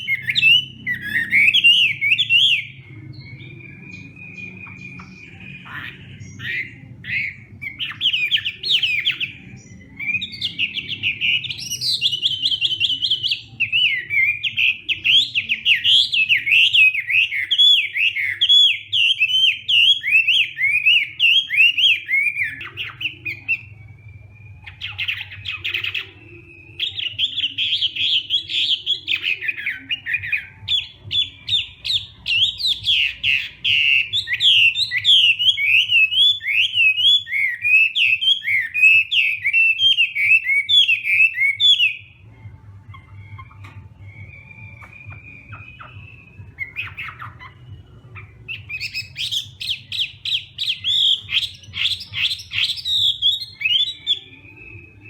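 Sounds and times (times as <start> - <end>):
bird whistled song: 0.0 - 55.0.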